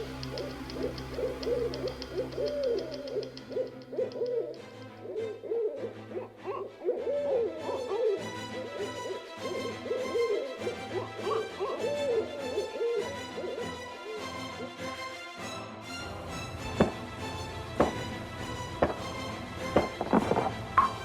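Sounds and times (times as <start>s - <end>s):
low steady hum: 0.0s - 3.9s, 15.9s - 21.0s
owl hooting: 0.0s - 13.8s.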